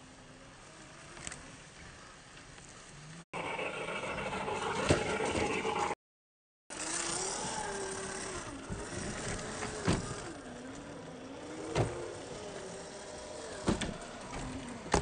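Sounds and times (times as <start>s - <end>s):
electric motor whining: 6.7s - 15.0s.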